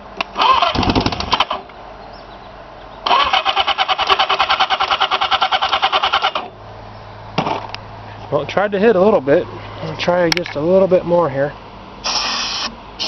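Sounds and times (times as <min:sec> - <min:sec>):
motorcycle engine cranking: 0:00.2 - 0:01.6, 0:03.0 - 0:06.5.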